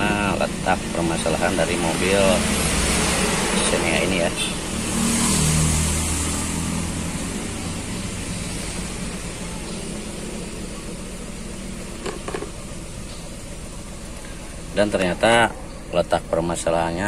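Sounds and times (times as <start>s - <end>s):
car engine idling with misfire: 0.0s - 17.0s.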